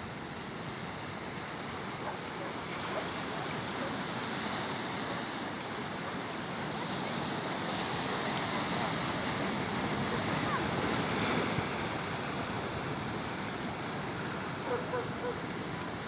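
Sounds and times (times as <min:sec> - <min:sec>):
sea surf washing ashore: 0:00.0 - 0:16.0.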